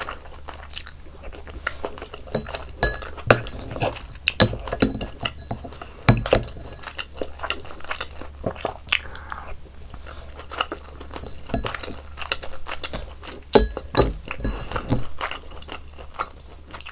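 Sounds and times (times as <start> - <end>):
person chewing food: 0.0 - 16.9.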